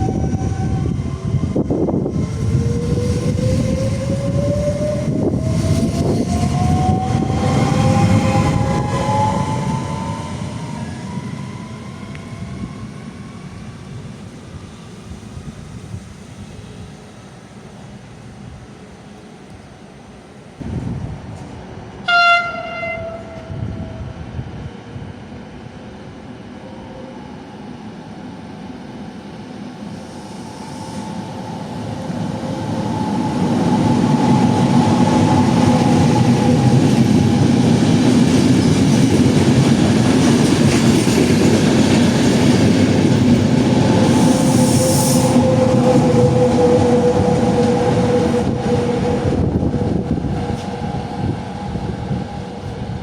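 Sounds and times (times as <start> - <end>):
train rumbling past: 0.0 - 53.0
train horn: 22.0 - 24.2, 44.1 - 52.4.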